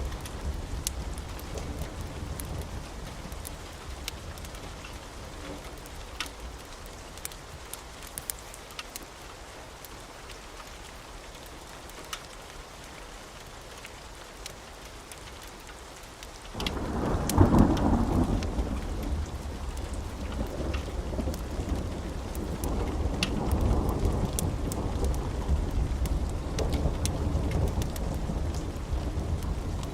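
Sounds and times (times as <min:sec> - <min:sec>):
sharp crackles: 0:00.0 - 0:09.1, 0:16.4 - 0:29.9
steady rain: 0:00.0 - 0:29.9
thunder rumbling: 0:16.6 - 0:29.9.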